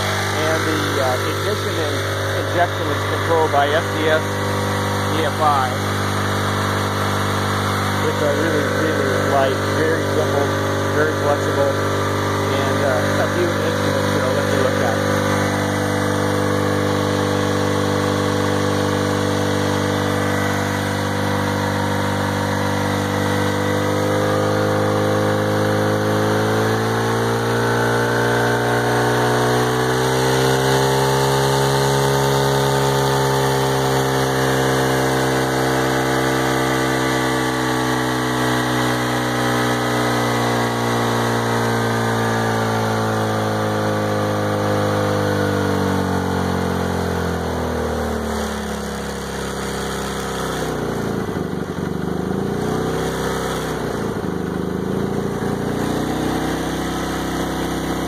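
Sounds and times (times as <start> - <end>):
turbocharged engine running: 0.0 - 58.0.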